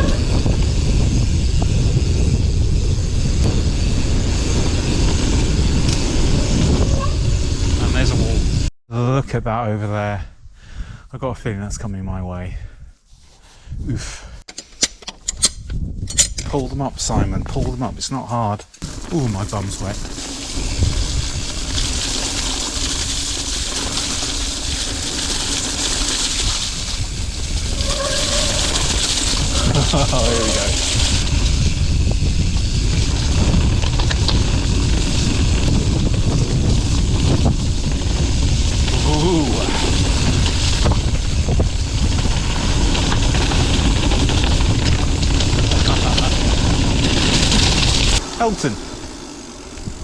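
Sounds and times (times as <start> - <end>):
wind rumble on microphone: 0.0 - 8.7, 15.4 - 18.1, 18.8 - 48.2, 48.9 - 50.0
tyre noise on rough ground: 18.7 - 50.0.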